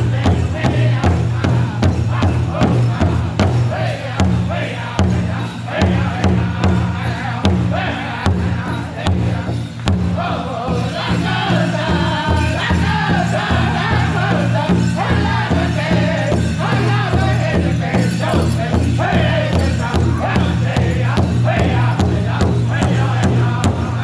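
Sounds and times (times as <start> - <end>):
big drum beat: 0.0 - 24.0
drum group singing: 0.0 - 24.0.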